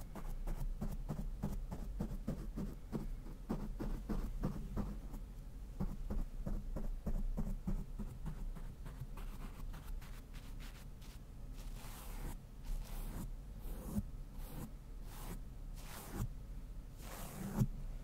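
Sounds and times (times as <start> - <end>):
brush scratching over microphone: 9.2 - 16.3, 17.0 - 17.6.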